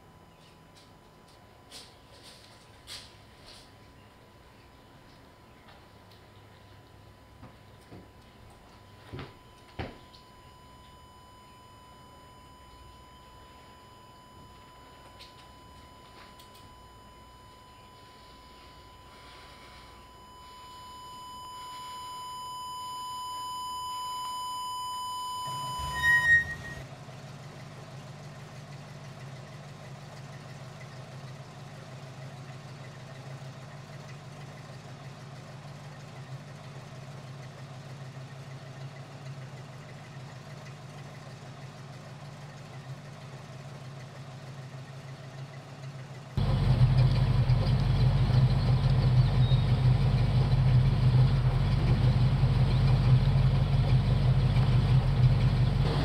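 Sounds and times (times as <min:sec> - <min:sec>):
car engine humming: 0:00.0 - 0:22.8, 0:25.0 - 0:56.0
high-pitched tone: 0:08.9 - 0:26.8.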